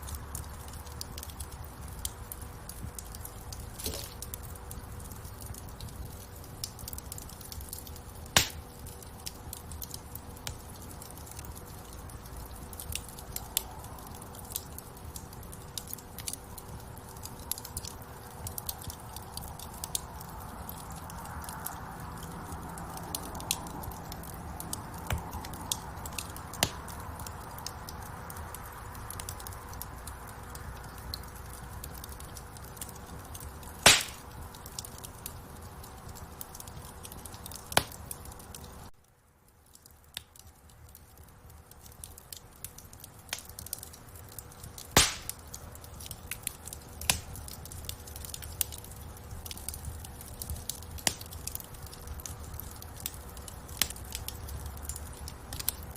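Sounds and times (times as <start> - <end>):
wood fire crackling: 0.0 - 55.9
loud fire pops: 5.3 - 9.0, 23.1 - 27.7, 32.0 - 35.0, 42.1 - 55.8.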